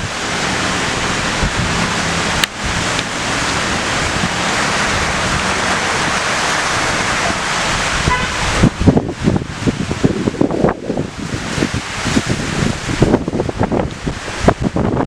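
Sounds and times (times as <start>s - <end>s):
wind buffeting the microphone: 0.0s - 0.4s, 1.0s - 15.0s
rain and wind hissing: 0.0s - 15.0s.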